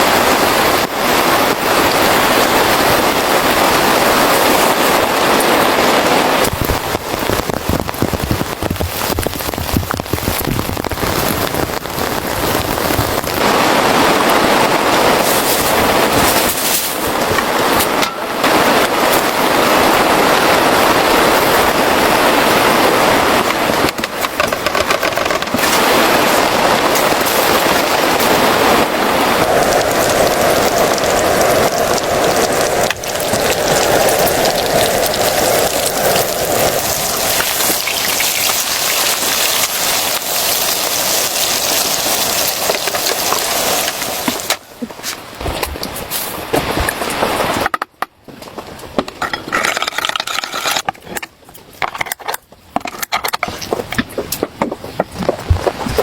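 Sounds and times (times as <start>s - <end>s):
heavy rain falling: 0.0s - 47.8s
sharp crackling: 4.7s - 20.6s, 21.3s - 45.9s.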